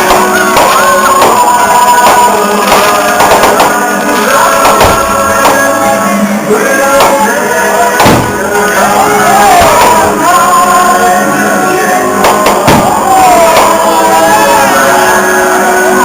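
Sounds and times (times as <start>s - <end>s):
sharp bangs: 0.0s - 5.9s, 6.6s - 10.3s, 12.2s - 14.0s
people shouting: 0.0s - 16.0s
rock music with singing: 0.0s - 16.0s.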